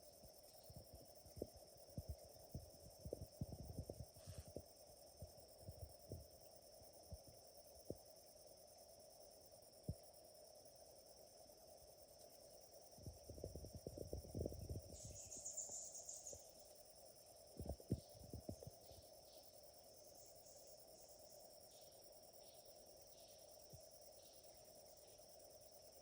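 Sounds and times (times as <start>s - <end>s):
low insect drone: 0.0s - 26.0s
high-pitched insect buzz: 9.7s - 26.0s.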